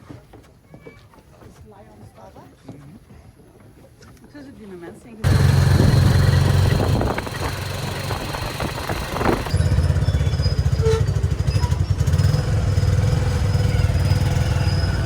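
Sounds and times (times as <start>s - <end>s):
vehicle engine running: 5.2s - 15.0s.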